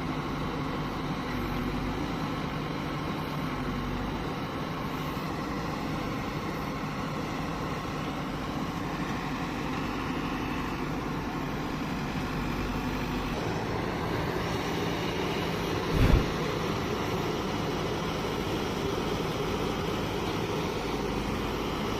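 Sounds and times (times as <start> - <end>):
heavy diesel engine running: 0.0 - 21.9
loud thump: 15.9 - 16.4.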